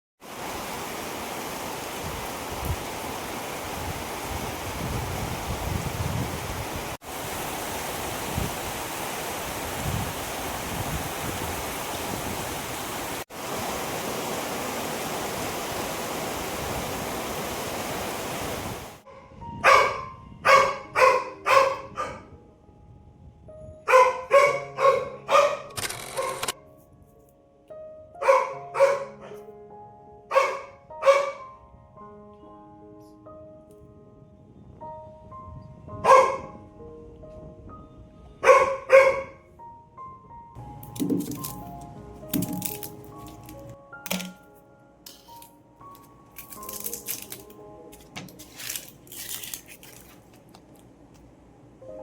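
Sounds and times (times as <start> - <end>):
rain hiss: 0.2 - 19.0.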